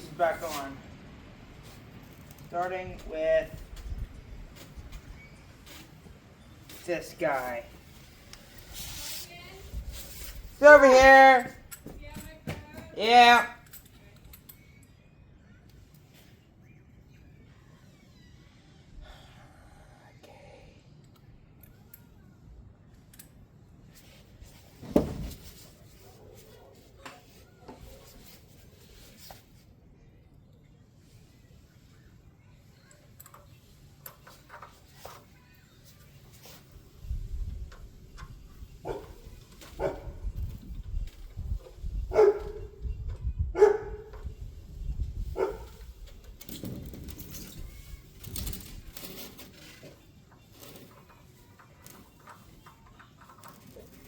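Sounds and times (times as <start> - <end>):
soft rustling: 0.0 - 11.0, 23.8 - 29.8
dog barking: 38.8 - 39.2, 39.8 - 40.2, 42.1 - 42.7, 43.6 - 44.1, 45.4 - 45.8.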